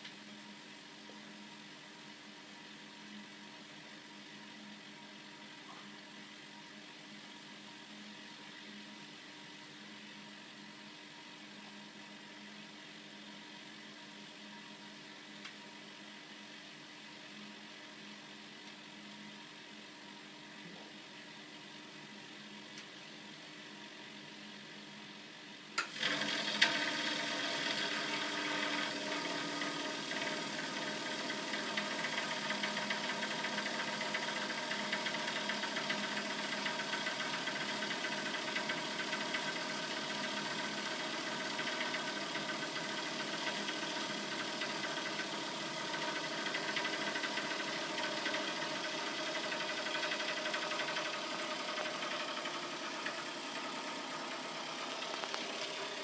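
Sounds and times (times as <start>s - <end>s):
boiler rattling and knocking: 26.2s - 56.0s.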